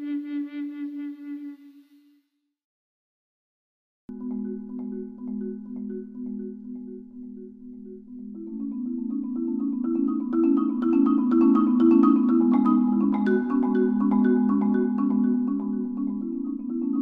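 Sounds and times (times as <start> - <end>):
marimba music: 4.1 - 17.0.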